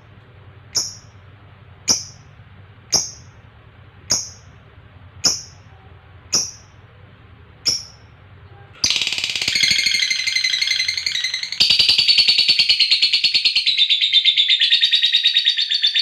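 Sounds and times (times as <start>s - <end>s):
lovebird chirps: 0.7s - 1.2s, 1.9s - 2.2s, 2.9s - 3.4s, 4.1s - 4.5s, 5.2s - 5.7s, 6.3s - 6.8s, 7.6s - 8.2s, 8.8s - 16.0s
rapid rattling bird chatter: 8.8s - 13.8s.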